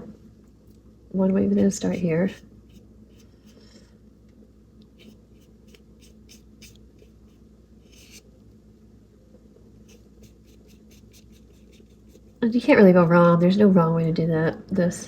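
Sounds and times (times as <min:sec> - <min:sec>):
low steady hum: 0:00.0 - 0:15.0
paintbrush scratching on paper: 0:01.4 - 0:03.7, 0:05.0 - 0:08.3, 0:09.8 - 0:12.5.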